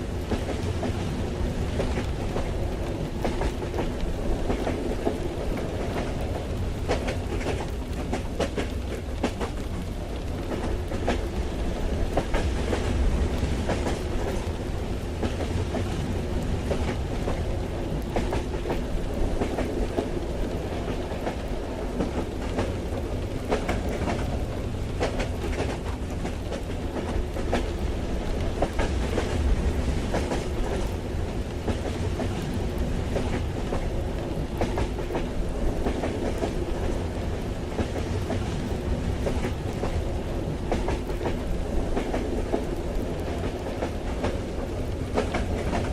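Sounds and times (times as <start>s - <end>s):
train wheels rumbling: 0.0s - 45.9s
clicks and clacks from rails: 3.2s - 11.3s, 12.0s - 14.5s, 16.7s - 27.7s, 34.6s - 36.9s, 40.7s - 45.9s.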